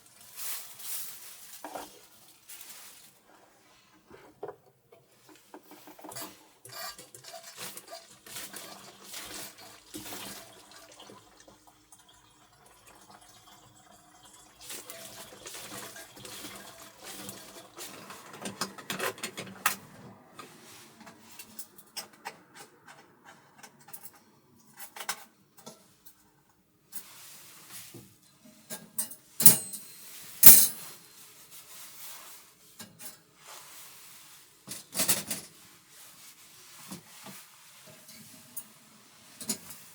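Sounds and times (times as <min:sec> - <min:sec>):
dishes and utensils clinking: 0:28.8 - 0:30.9.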